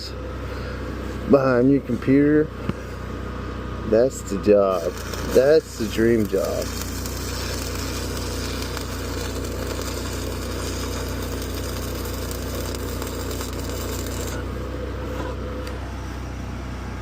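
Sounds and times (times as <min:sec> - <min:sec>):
low engine hum: 0:00.0 - 0:17.0
welding arc crackling hiss: 0:04.0 - 0:14.6.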